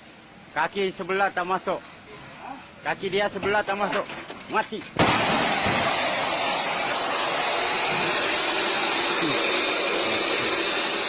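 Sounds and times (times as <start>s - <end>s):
loud rushing hiss: 5.0s - 11.0s.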